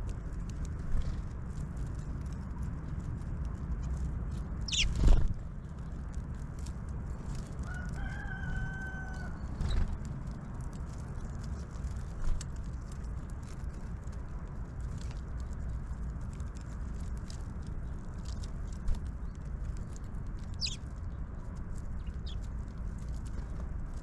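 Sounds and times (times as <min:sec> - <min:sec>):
rooster crowing: 0:07.6 - 0:09.5.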